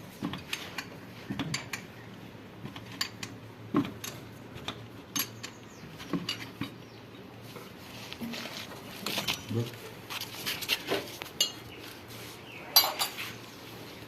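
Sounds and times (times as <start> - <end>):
metal tools clinking: 11.4 - 11.6, 12.7 - 13.3.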